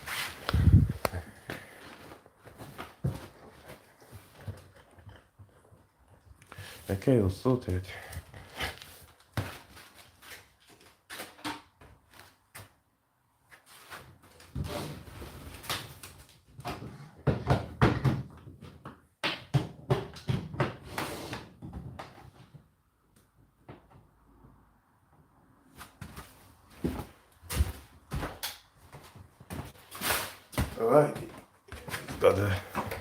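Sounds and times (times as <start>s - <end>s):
rustling of handled things: 0.0s - 12.8s, 25.7s - 33.0s.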